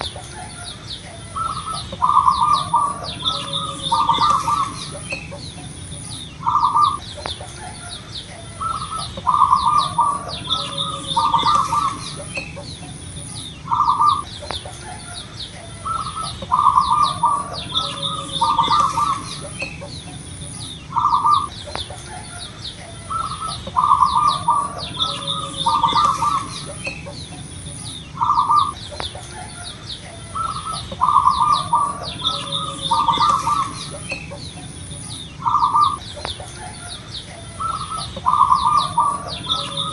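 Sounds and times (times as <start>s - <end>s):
thin high chirping: 0.0s - 15.2s, 15.8s - 39.9s
doves cooing: 0.0s - 39.9s.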